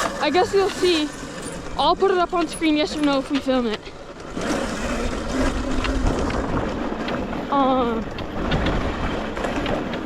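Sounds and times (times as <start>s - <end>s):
wind rushing over microphone: 4.3s - 10.0s.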